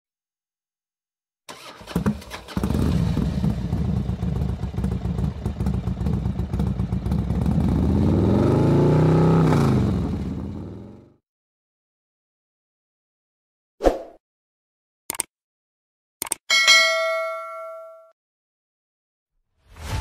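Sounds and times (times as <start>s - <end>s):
motorcycle engine running: 2.0s - 11.2s.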